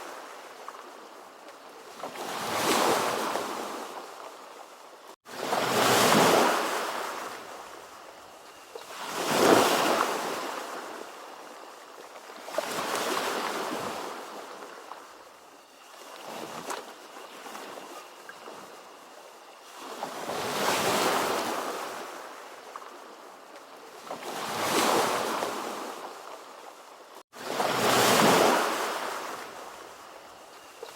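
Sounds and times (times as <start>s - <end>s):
ocean waves breaking: 5.3s - 7.8s, 27.4s - 30.0s.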